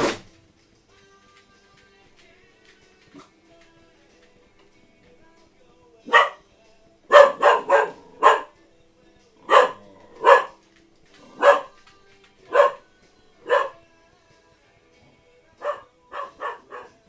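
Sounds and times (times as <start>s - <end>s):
dog barking: 6.0s - 6.4s, 7.1s - 8.6s, 9.4s - 10.6s, 11.2s - 11.8s, 12.4s - 13.8s, 15.6s - 17.0s.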